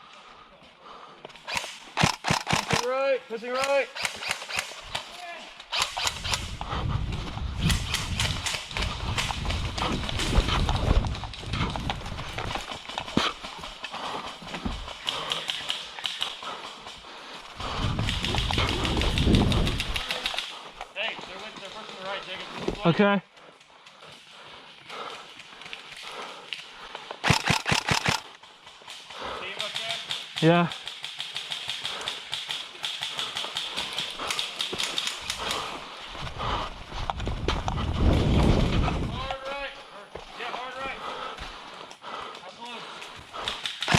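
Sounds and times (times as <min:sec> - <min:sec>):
running footsteps on woodland floor: 0:06.5 - 0:27.3, 0:28.2 - 0:30.1, 0:31.8 - 0:43.9.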